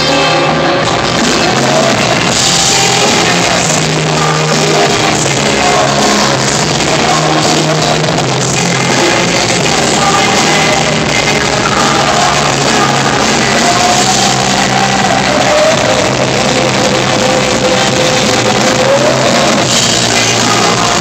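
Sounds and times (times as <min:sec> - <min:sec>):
rock band playing: 0:00.0 - 0:21.0
sustained singing: 0:00.4 - 0:21.0.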